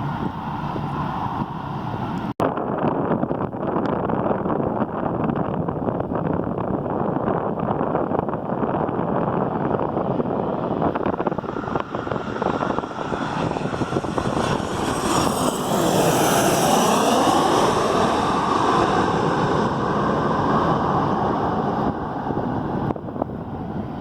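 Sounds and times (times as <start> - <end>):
airplane passing close by: 0.0 - 2.4, 8.0 - 24.0.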